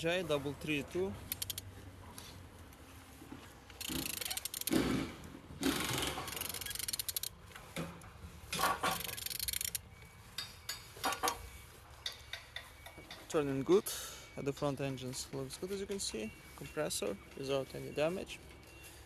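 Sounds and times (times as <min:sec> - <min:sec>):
wrench turning engine rubbing clicking: 0:01.2 - 0:01.7, 0:03.7 - 0:04.8, 0:05.6 - 0:07.4, 0:08.6 - 0:09.8.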